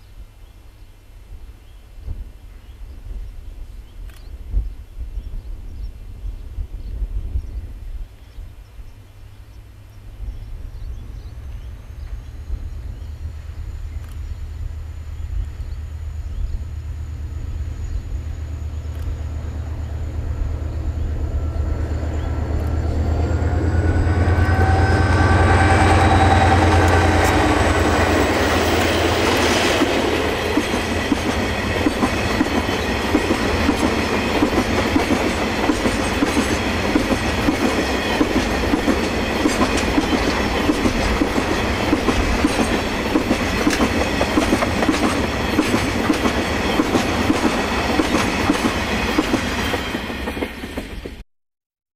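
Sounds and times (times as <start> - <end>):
locomotive engine drone: 9.6 - 51.1
wheels clacking over rail joints: 22.1 - 51.2.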